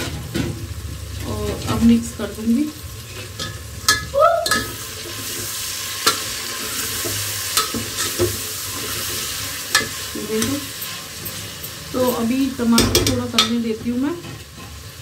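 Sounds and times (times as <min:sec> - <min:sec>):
food sizzling in oil: 0:00.0 - 0:15.0
metal spoon knocking pot: 0:03.4 - 0:04.8, 0:12.7 - 0:13.6.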